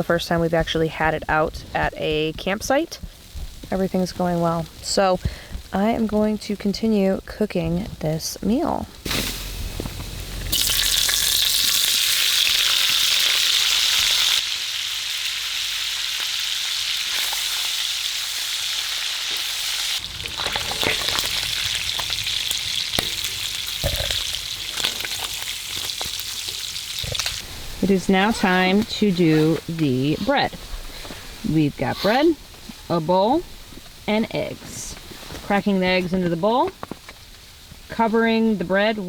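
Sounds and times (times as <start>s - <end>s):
sausage sizzling in a pan: 9.0s - 35.7s.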